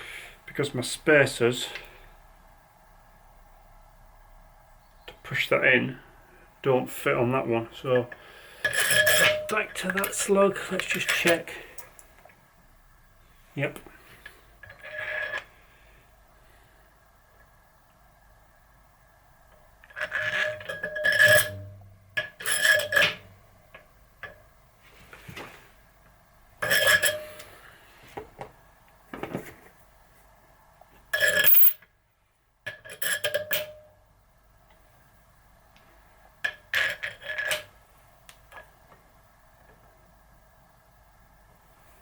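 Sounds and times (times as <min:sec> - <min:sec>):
faint steady hum: 0:00.0 - 0:42.0
small steel parts clinking: 0:08.6 - 0:11.9, 0:31.1 - 0:31.9.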